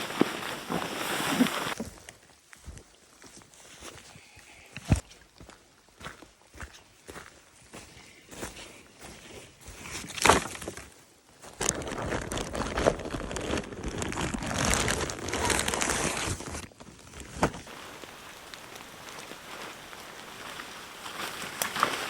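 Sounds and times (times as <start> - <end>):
crinkly material rustling: 0.0 - 1.8, 11.5 - 22.0.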